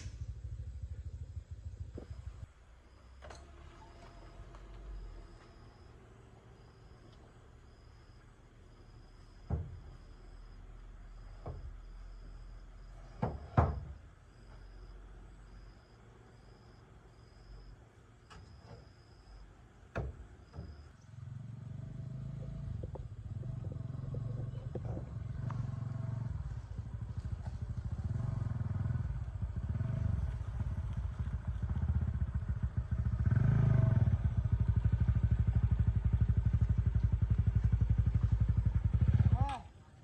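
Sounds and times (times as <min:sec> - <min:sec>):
small motorbike engine running: 0:20.6 - 0:39.8.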